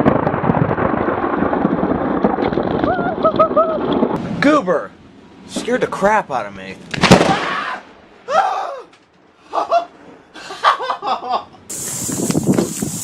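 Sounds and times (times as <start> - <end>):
person laughing: 2.9 - 3.9, 9.4 - 11.7
steady hiss: 11.7 - 13.0.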